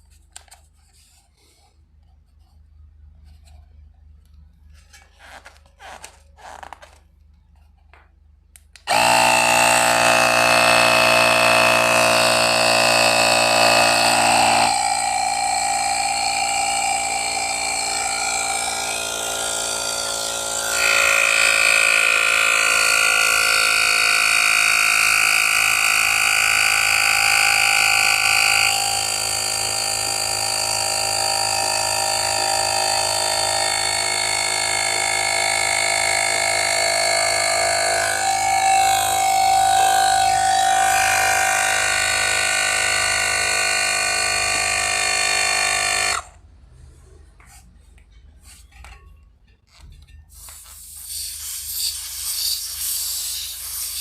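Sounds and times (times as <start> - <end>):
mini air compressor running: 8.8 - 46.4, 50.3 - 54.0.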